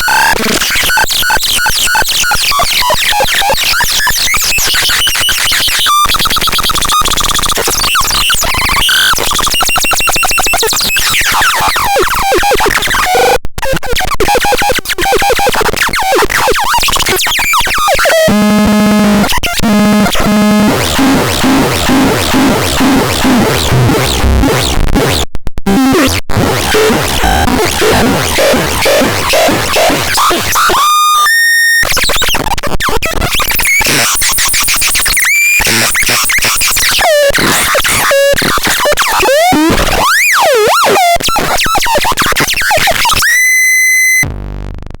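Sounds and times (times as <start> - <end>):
harsh noisy synthesizer: 14.0 - 45.0.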